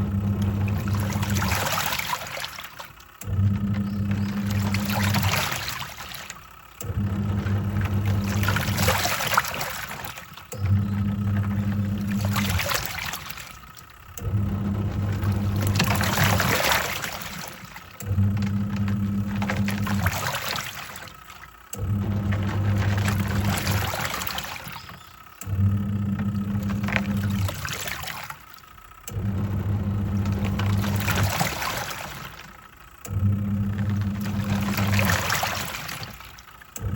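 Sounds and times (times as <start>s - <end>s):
washing machine motor humming: 0.0s - 36.9s
water swishing: 0.0s - 36.9s.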